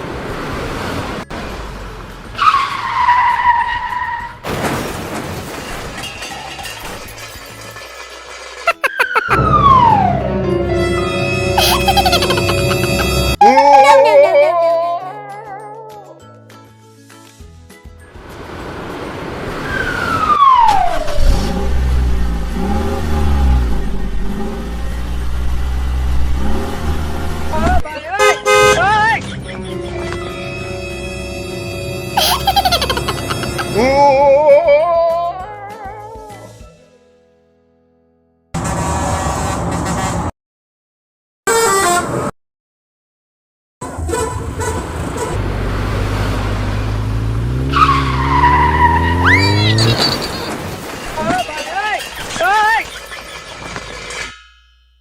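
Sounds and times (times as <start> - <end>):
falling whistle tone: 8.8 - 10.3, 19.6 - 21.5
low engine hum revving: 21.1 - 27.8, 44.8 - 50.2.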